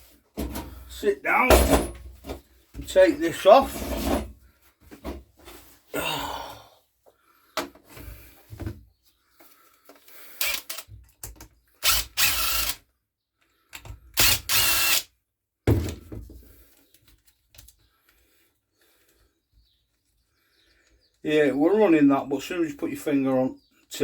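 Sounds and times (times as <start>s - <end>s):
clicks and knocks of tools: 9.8s - 11.6s, 13.7s - 14.0s
cordless power driver running: 10.4s - 10.9s, 11.8s - 12.8s, 14.2s - 15.1s.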